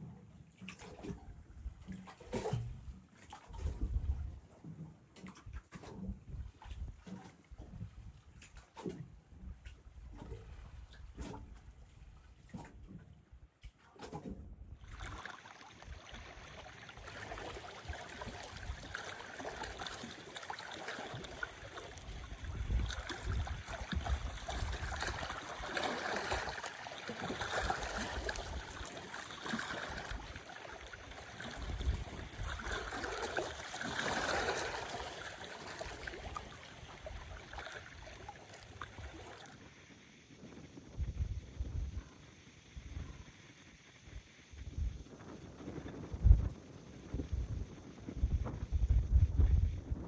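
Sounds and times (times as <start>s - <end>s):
wind buffeting microphone: 3.5s - 4.5s, 15.9s - 20.5s, 21.1s - 39.3s, 40.6s - 42.1s, 44.5s - 50.0s
lake water lapping at shore: 13.7s - 39.6s.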